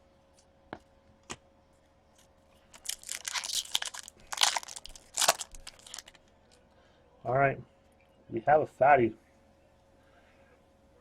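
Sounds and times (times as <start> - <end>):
wrapper crinkling and tearing: 2.7 - 6.2.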